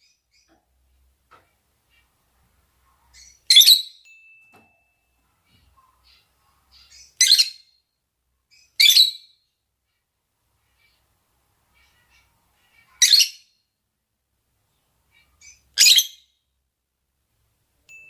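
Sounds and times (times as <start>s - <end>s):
faint bird chirps: 0.0s - 1.0s, 2.8s - 10.0s, 10.6s - 13.8s, 14.7s - 16.5s.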